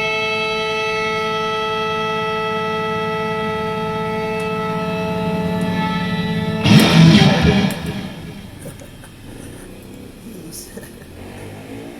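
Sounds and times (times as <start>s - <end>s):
electric guitar sustained note: 0.0s - 9.4s
low amplifier hum: 0.0s - 9.6s
sudden noisy burst: 0.5s - 9.6s.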